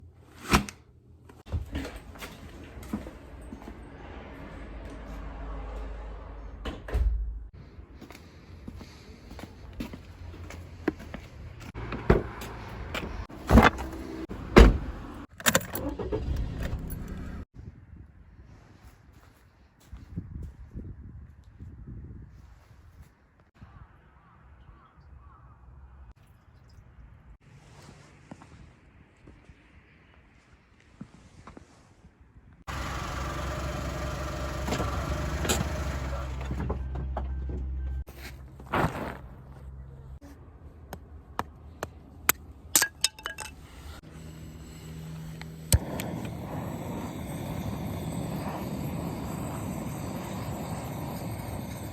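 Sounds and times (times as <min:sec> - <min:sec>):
engine hum: 0:01.4 - 0:17.5, 0:32.7 - 0:40.2, 0:43.0 - 0:51.9.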